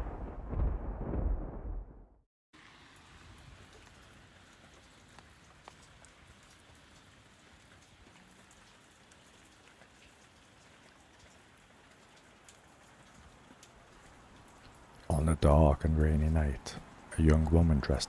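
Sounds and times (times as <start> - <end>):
faint rain falling: 2.6 - 18.0
raindrops ticking: 2.7 - 18.0.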